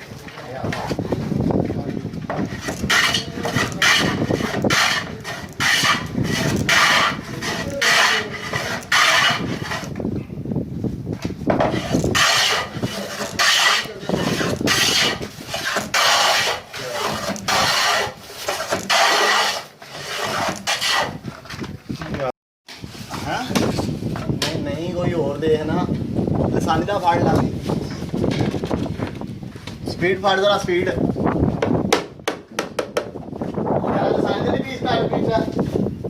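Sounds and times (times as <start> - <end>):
hand tool rasping on wood: 2.4 - 10.0, 11.6 - 21.2.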